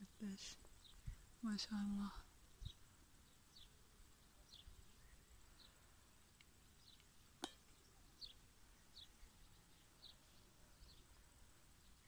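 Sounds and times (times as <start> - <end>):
faint high bird chirps: 0.0 - 12.0.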